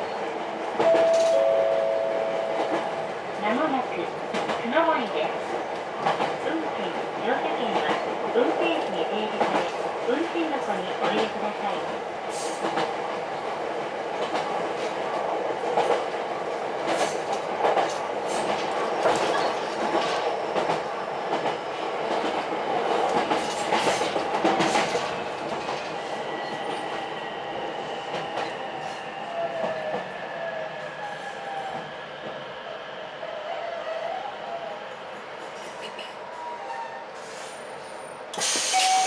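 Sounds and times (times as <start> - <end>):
train rolling noise: 0.0 - 39.0
train wheels clicking over rail joints: 16.8 - 26.0.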